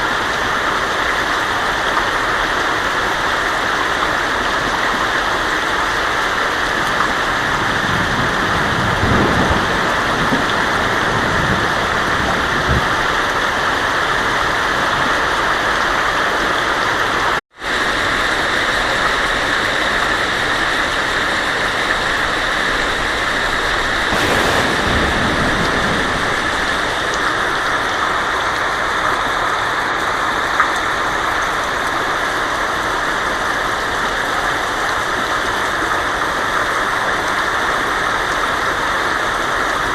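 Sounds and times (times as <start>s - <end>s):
heavy rain on a tin roof: 0.0s - 39.9s
low thunder rumbles: 23.4s - 28.5s.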